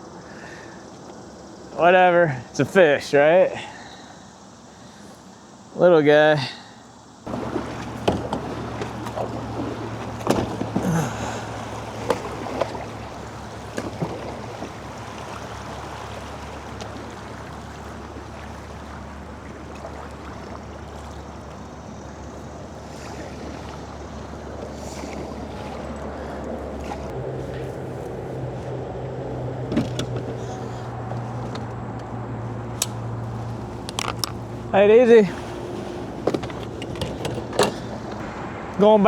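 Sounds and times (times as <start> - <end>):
steady low hum: 0.0 - 39.0
water noise: 0.0 - 39.0
gear knocks and clicks: 33.8 - 34.4, 36.2 - 38.2.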